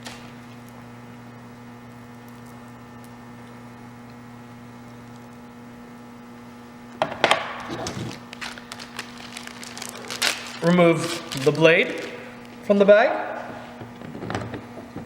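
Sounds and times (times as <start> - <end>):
mains hum: 0.0 - 15.0
saw chain handled in plastic bag: 8.3 - 12.1.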